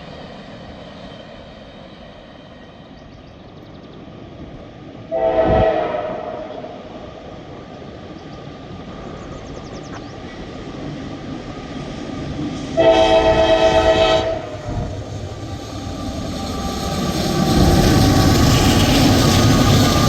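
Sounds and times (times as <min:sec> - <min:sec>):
train rumbling: 0:00.0 - 0:20.0
locomotive air horn blast: 0:05.1 - 0:06.5, 0:12.8 - 0:14.9.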